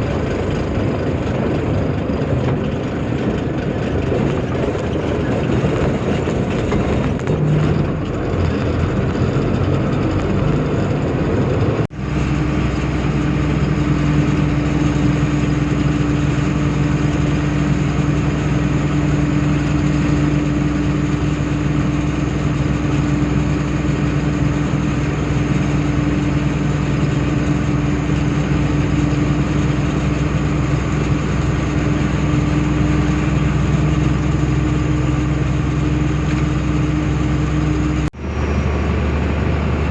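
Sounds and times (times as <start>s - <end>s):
truck engine running: 0.0s - 39.9s
steady droning hum: 11.0s - 39.9s.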